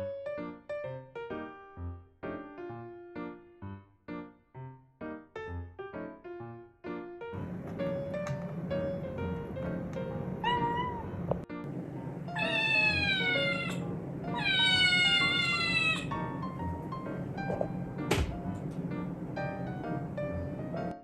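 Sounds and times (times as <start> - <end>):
kitten meowing: 10.4 - 11.2, 12.3 - 16.3
background music: 12.6 - 21.0.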